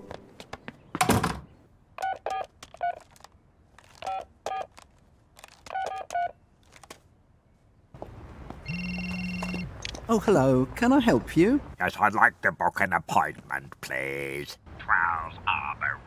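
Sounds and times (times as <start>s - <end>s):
telephone keypad beeps: 8.7s - 9.7s.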